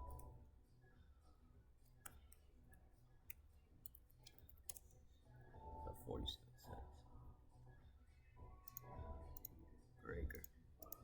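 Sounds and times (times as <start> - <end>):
keyboard and mouse clicks: 8.6 - 9.6, 10.3 - 11.0.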